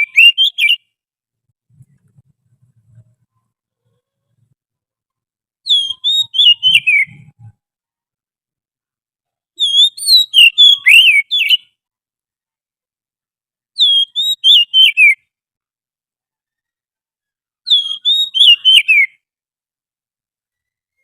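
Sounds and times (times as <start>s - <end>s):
magpie-robin whistled song: 0.0s - 1.0s, 5.6s - 7.5s, 9.6s - 11.8s, 13.8s - 15.3s, 17.6s - 19.2s, 20.5s - 21.0s.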